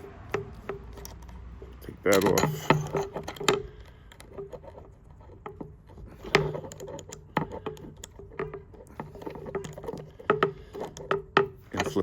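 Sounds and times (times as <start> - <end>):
small metal parts clicking: 0.0 - 12.0.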